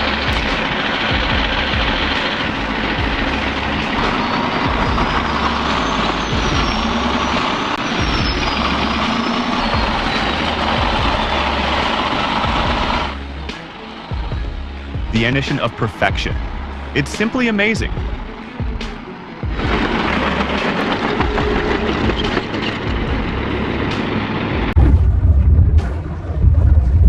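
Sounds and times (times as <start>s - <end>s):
heavy diesel machinery running: 0.0s - 24.8s.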